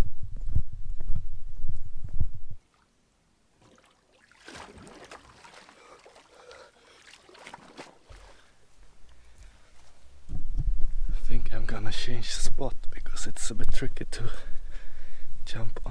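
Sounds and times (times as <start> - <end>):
sea water splashing: 2.7 - 10.2.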